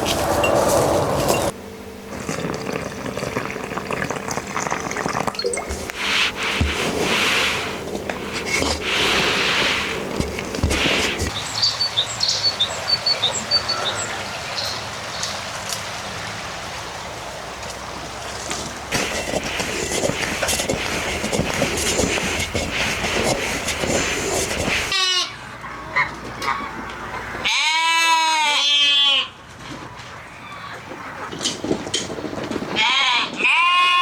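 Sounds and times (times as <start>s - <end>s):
farm animal bleating: 27.4s - 29.4s, 32.8s - 34.0s.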